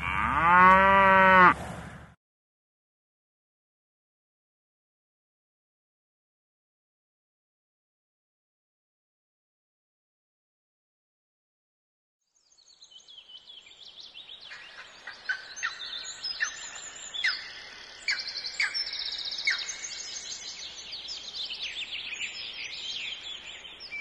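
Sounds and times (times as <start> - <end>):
birds chirping and calling: 13.2 - 24.0.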